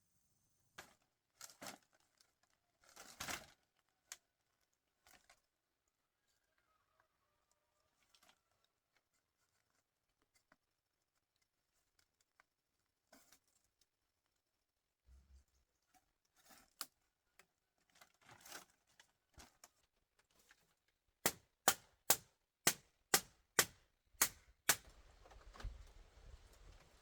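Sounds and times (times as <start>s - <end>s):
rustling: 24.2s - 27.0s.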